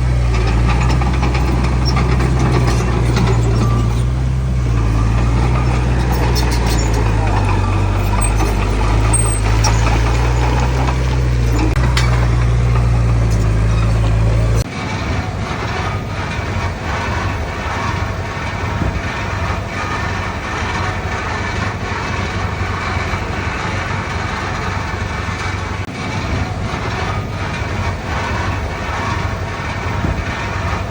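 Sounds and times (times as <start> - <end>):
clattering engine: 0.0 - 30.9
diesel engine deep hum: 0.0 - 30.9.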